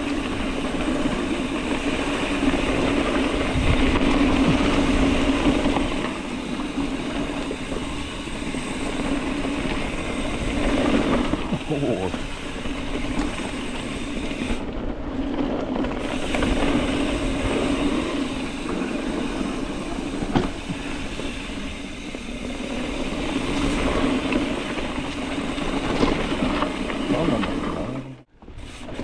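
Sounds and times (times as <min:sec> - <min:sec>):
bike tyres rolling on dirt: 0:00.0 - 0:29.0
chain and frame rattle: 0:19.0 - 0:20.4.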